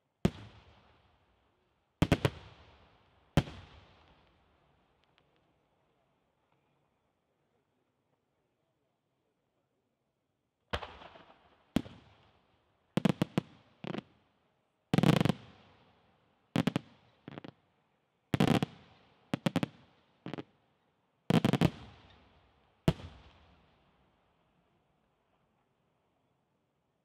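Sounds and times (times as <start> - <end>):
fireworks bursting with echo: 0.3 - 1.1, 2.0 - 4.4, 10.7 - 12.4, 13.0 - 14.2, 15.0 - 17.6, 18.4 - 20.5, 21.3 - 23.8.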